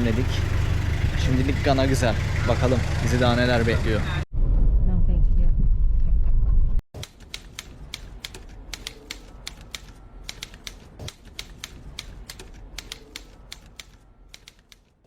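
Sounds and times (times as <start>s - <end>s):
rapid irregular clicking: 7.0s - 15.0s.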